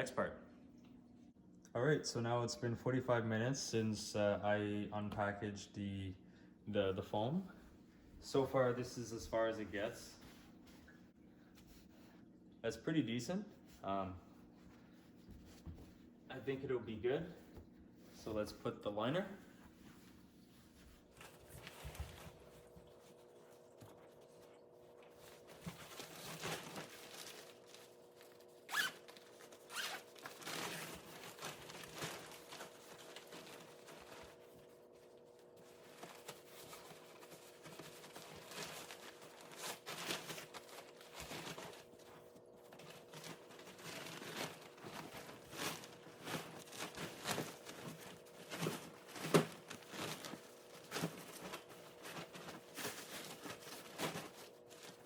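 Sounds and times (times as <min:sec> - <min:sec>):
cloth rubbing against foam: 0:27.5 - 0:31.0.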